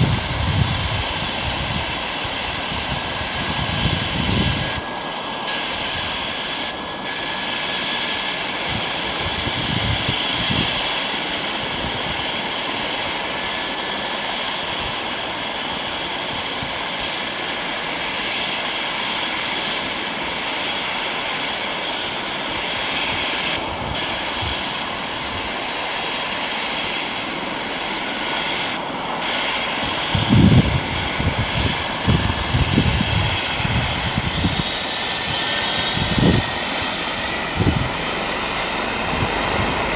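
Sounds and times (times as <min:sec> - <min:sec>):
helicopter engine and rotor: 0:00.0 - 0:39.9
low buffeting: 0:30.0 - 0:39.9.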